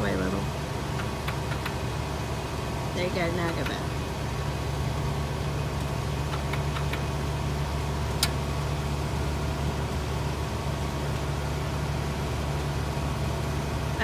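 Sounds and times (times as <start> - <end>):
van engine idling: 0.0 - 14.0
sharp click: 1.0 - 1.8, 6.3 - 7.1.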